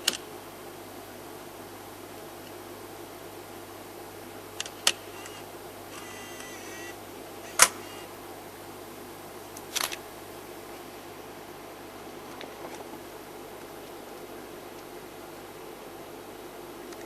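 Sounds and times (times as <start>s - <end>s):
background hiss: 0.0s - 17.0s
short sharp clicks: 7.5s - 7.9s.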